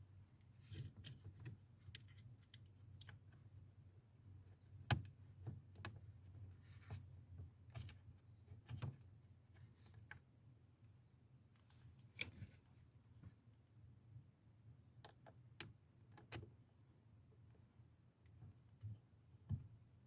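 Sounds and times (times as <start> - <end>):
small clicks and taps: 0.7 - 3.4.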